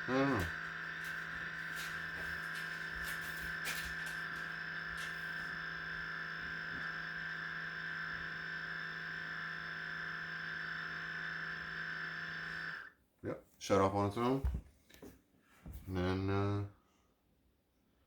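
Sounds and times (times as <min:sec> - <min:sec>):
water pump humming: 0:00.0 - 0:12.9.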